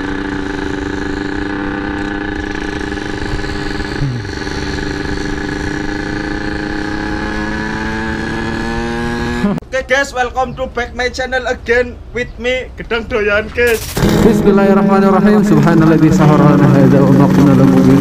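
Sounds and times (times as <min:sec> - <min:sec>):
motorcycle engine running: 0:00.0 - 0:09.6, 0:13.8 - 0:18.0.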